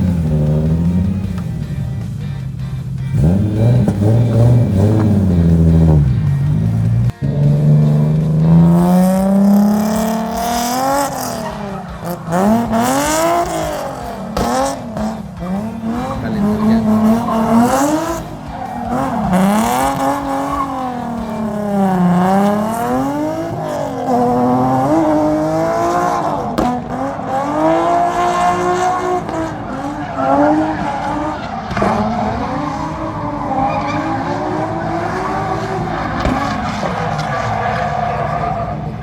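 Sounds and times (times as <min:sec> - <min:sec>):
car engine revving: 0:00.0 - 0:39.0
tyres squealing: 0:00.0 - 0:39.0.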